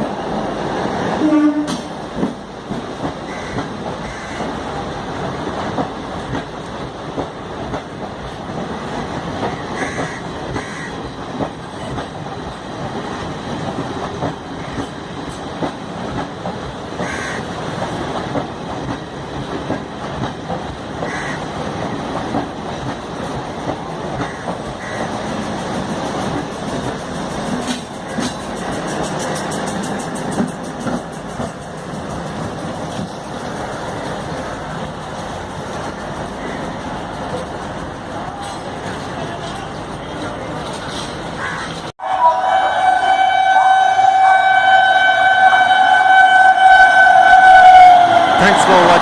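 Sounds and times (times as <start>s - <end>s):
train rumble: 0.0s - 49.0s
wheels clicking over rail joints: 5.2s - 41.9s.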